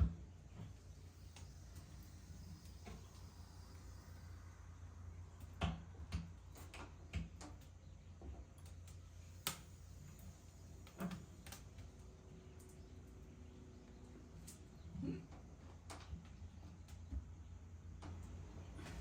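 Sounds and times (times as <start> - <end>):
low steady hum: 0.0 - 19.0
faint clicks and light knocks: 5.4 - 13.2, 17.9 - 18.4.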